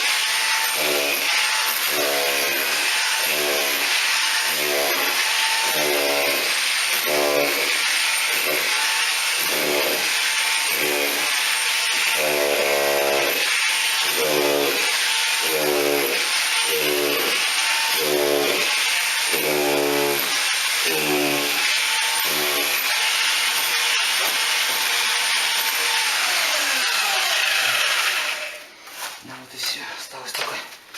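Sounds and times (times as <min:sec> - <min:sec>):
electric drill boring into wall: 0:00.0 - 0:28.7.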